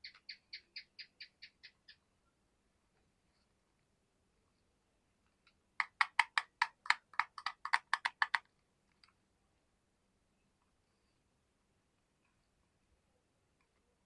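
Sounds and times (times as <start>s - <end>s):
fidget toy clicking: 5.8s - 8.5s.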